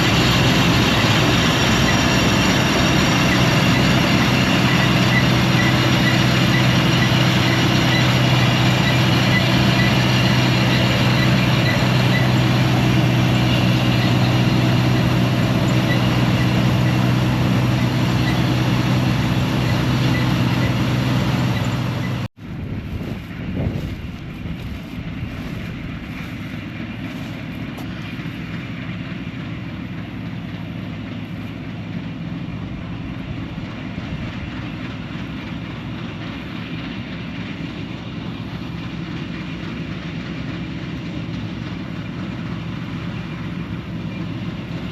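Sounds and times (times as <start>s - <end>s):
combine harvester diesel engine: 0.0s - 44.9s.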